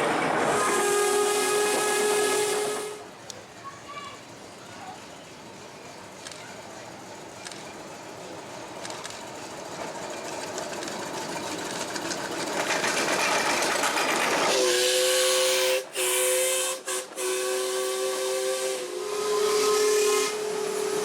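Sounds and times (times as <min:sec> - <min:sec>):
two-note steam whistle: 0:00.5 - 0:03.1, 0:14.5 - 0:21.0
steam hissing: 0:12.6 - 0:21.0.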